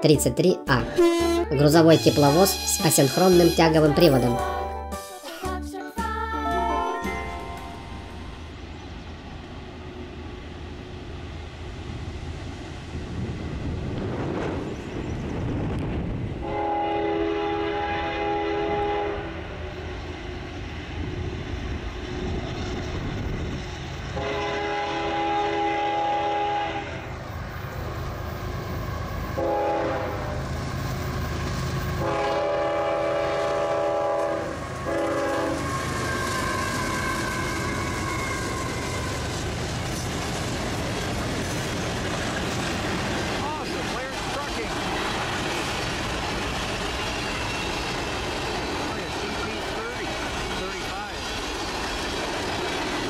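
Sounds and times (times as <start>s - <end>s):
diesel locomotive engines rumbling: 0.0s - 4.8s, 6.4s - 53.0s
train air horn blasts: 0.9s - 4.4s, 16.4s - 19.7s, 24.2s - 27.1s, 29.4s - 30.4s, 32.0s - 39.3s.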